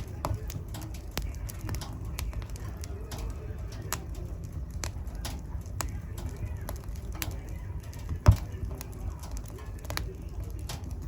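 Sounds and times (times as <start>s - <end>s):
fire crackling: 0.0s - 11.0s
wood fire rumbling: 0.0s - 11.0s
loud fire pop: 8.2s - 8.7s.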